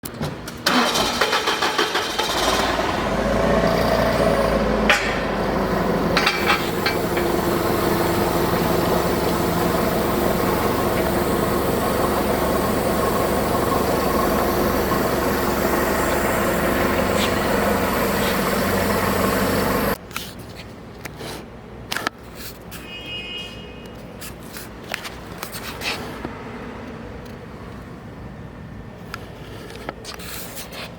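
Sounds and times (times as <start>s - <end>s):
engine running: 0.6s - 20.0s.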